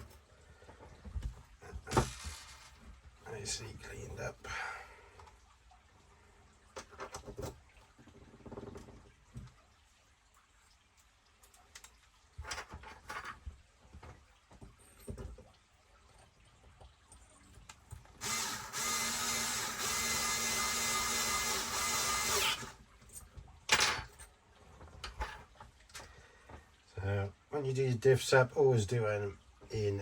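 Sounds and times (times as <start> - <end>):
electric screwdriver running: 18.2 - 22.8.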